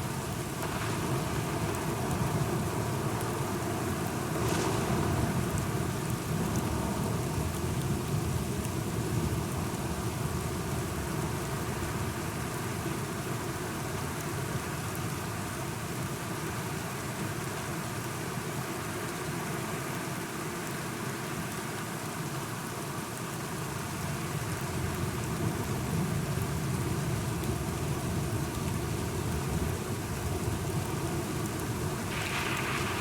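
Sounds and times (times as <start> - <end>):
steady rain falling: 0.0 - 33.0
low rumble of thunder: 0.2 - 11.3, 31.8 - 33.0.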